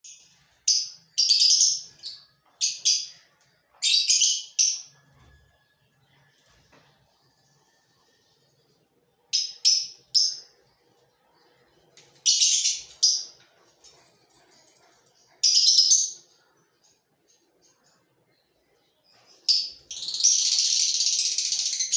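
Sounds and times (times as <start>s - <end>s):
lovebirds shrill calls: 19.5s - 21.9s.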